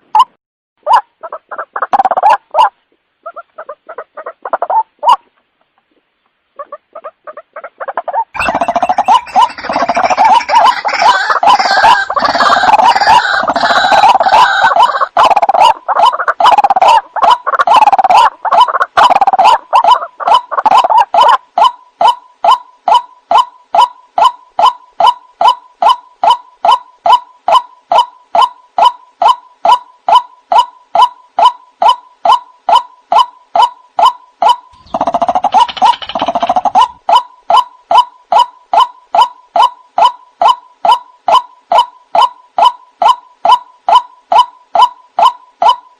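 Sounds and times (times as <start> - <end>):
bird croaking chorus: 8.4 - 45.9
repeated kook bird notes: 8.4 - 45.9.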